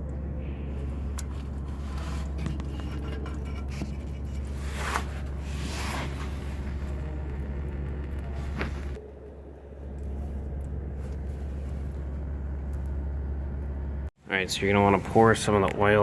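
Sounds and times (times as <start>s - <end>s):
steady low hum: 0.0s - 16.0s
brief scraping handling sounds: 1.3s - 6.8s.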